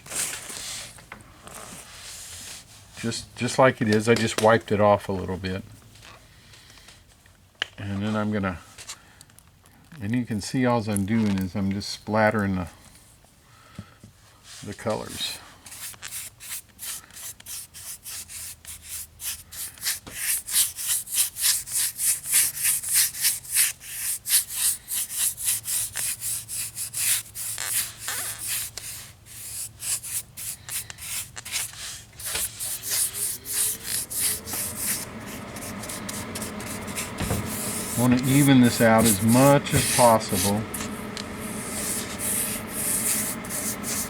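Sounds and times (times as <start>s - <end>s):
scratchy paintbrush strokes: 22.6s - 44.0s.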